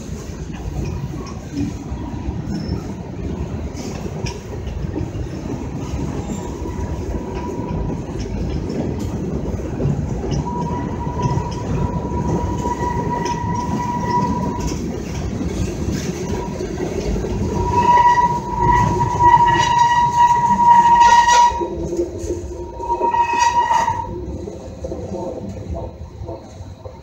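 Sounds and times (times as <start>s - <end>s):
thin wheel squeal: 22.8s - 24.1s.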